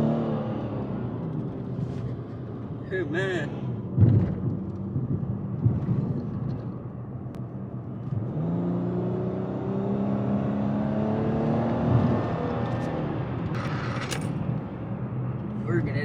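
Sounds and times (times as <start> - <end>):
car engine accelerating: 8.0 - 15.9.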